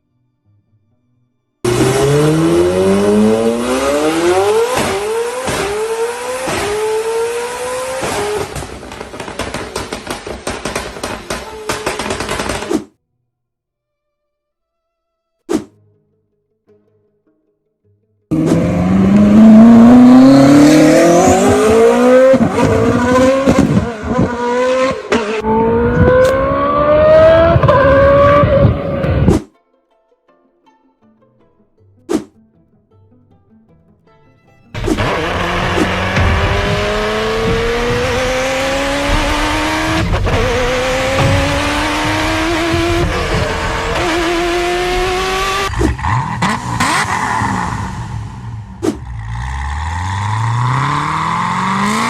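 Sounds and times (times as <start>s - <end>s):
car engine accelerating through gears: 1.7s - 10.2s, 18.3s - 29.5s, 34.8s - 52.0s.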